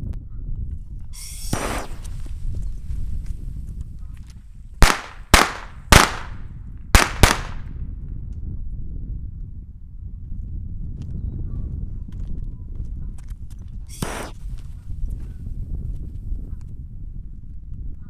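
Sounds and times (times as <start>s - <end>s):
fireworks bangs: 1.2s - 2.4s, 4.8s - 6.4s, 7.0s - 7.6s, 14.0s - 14.3s
firework hiss: 1.2s - 2.6s, 4.8s - 6.4s, 7.0s - 7.6s, 13.9s - 14.4s.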